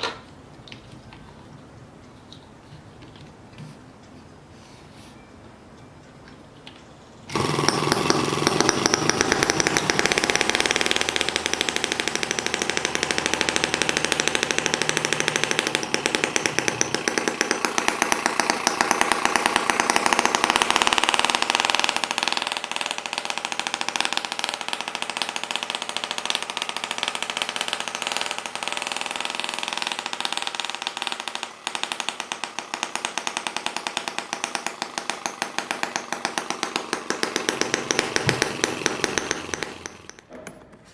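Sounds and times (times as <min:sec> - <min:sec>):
small model engine running fast: 0:07.3 - 0:34.1.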